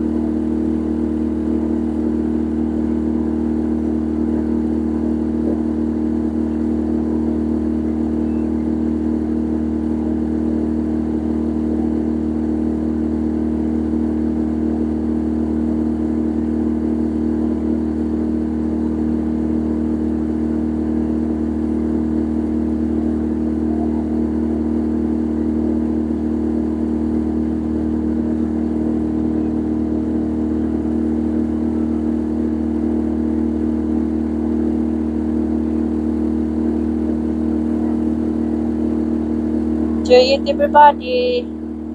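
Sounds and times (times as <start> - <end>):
boat engine running: 0.0 - 41.9.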